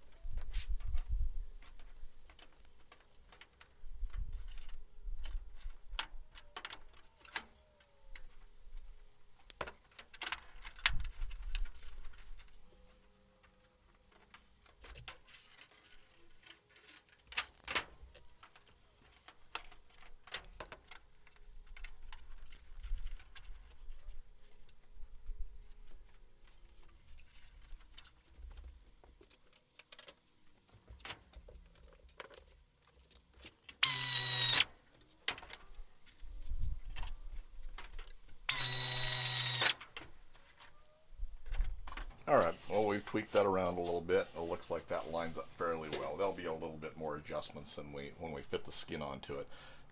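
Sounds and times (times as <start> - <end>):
power drill starting: 33.8 - 34.7, 38.5 - 39.9.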